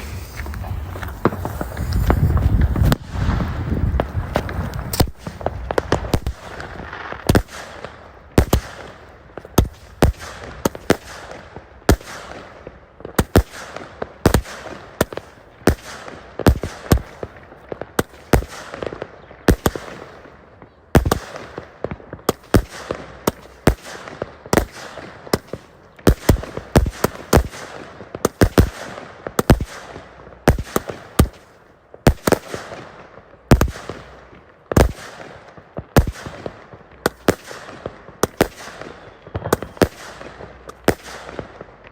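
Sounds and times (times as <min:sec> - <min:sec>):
steady hiss: 0:00.0 - 0:07.1
fireworks bangs: 0:00.0 - 0:20.3, 0:32.1 - 0:41.9.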